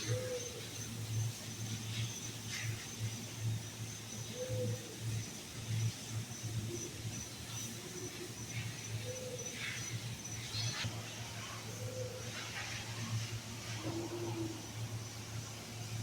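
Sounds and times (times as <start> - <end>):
steady low hum: 0.0 - 16.0
bird calls: 8.5 - 10.9.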